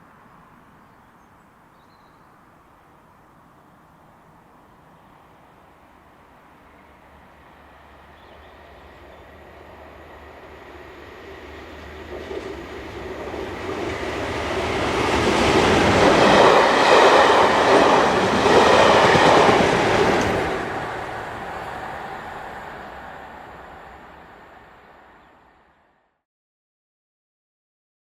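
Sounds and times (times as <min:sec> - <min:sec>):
diesel locomotives passing: 0:04.3 - 0:26.0.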